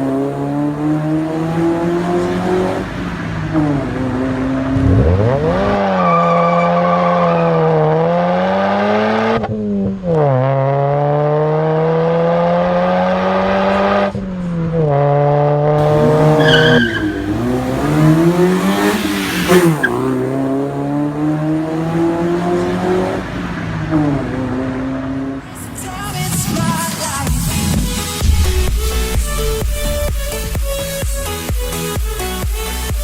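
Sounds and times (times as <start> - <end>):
car engine accelerating: 0.0 - 32.0
wavering high squeal: 15.9 - 17.7.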